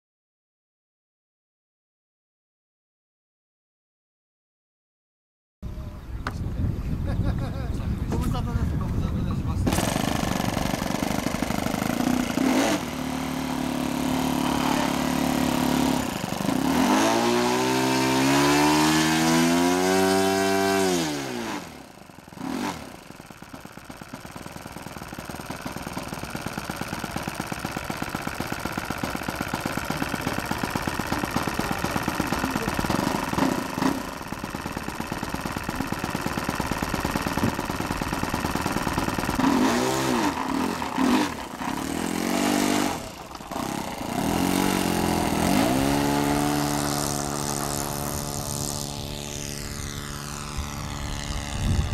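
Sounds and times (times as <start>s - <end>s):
model airplane engine running: 7.2s - 51.9s.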